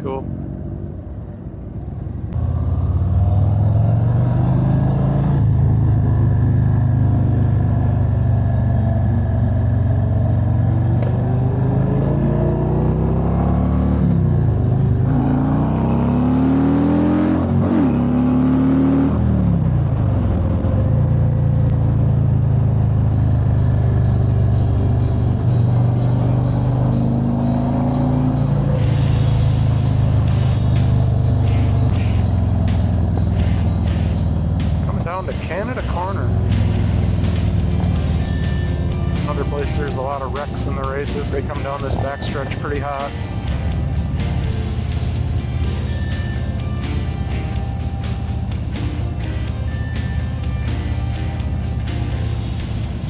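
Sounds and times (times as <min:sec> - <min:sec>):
motorcycle engine cruising: 0:00.0 - 0:53.0
music with steady beat: 0:22.8 - 0:53.0.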